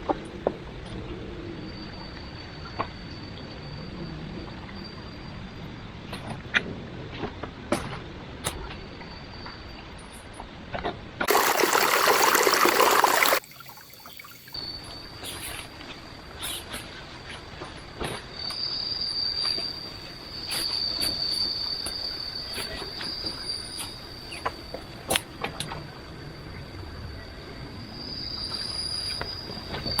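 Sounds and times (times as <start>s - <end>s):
insects droning: 11.3s - 30.0s.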